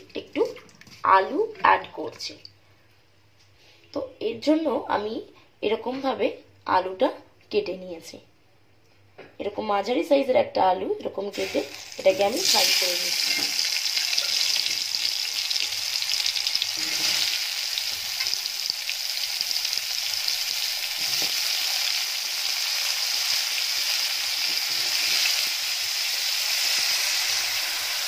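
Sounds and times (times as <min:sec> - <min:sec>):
potatoes frying in oil: 0:11.3 - 0:28.0.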